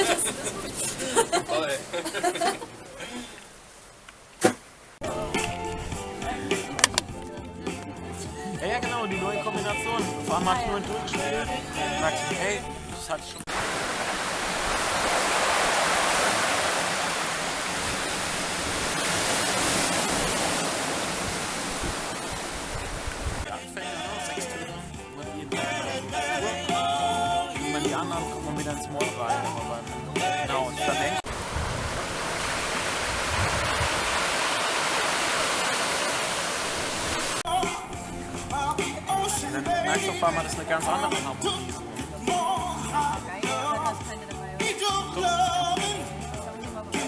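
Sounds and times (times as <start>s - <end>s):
steady rushing noise: 12.5s - 23.5s, 31.2s - 37.4s.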